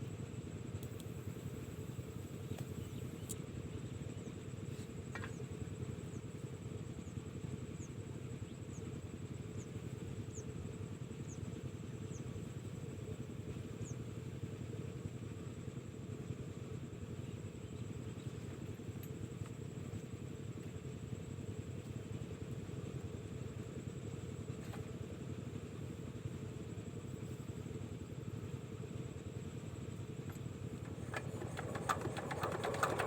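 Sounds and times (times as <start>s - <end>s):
diesel engine driving water pump: 25.1s - 33.0s.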